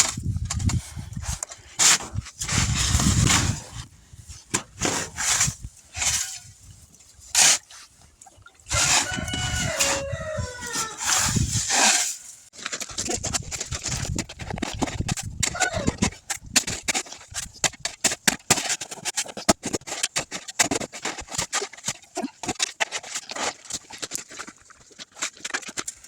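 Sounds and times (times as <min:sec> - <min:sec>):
rooster crowing: 0:08.7 - 0:11.1.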